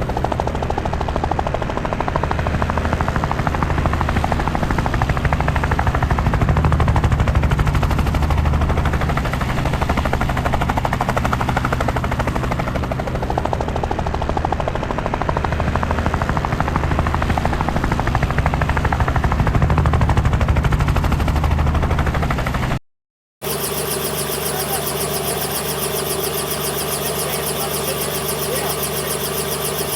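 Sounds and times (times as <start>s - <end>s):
helicopter engine drone: 0.0s - 22.8s, 23.4s - 29.9s
helicopter rotor chop: 0.0s - 22.8s, 23.4s - 29.9s.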